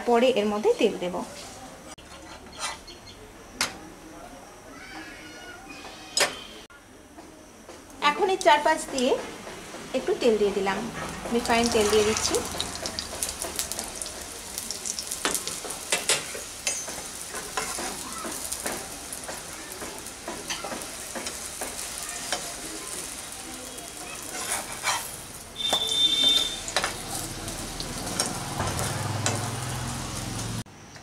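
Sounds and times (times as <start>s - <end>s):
metal spatula scraping pan: 2.0s - 2.9s, 15.2s - 18.5s, 24.2s - 27.0s
flatbread sizzling in oil: 9.9s - 30.7s
high spatula squeak: 23.9s - 26.9s.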